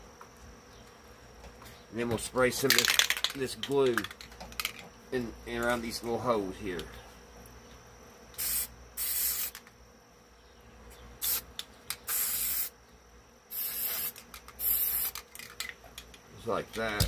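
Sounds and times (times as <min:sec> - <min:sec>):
spray can hissing: 0:08.4 - 0:09.6, 0:11.2 - 0:12.7, 0:13.5 - 0:15.2.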